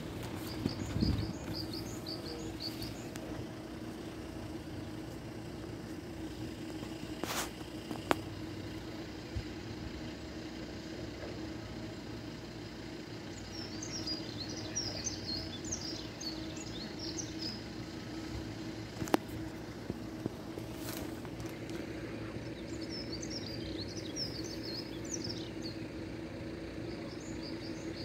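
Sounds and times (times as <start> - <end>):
low background hum: 0.0 - 28.0
small bird twittering: 0.2 - 5.0, 13.4 - 18.3, 22.2 - 26.0.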